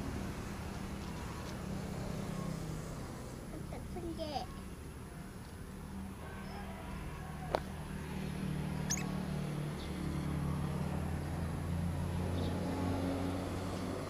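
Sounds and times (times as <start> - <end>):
vehicle engine humming: 7.8 - 14.0
bird squeaking: 8.8 - 9.2.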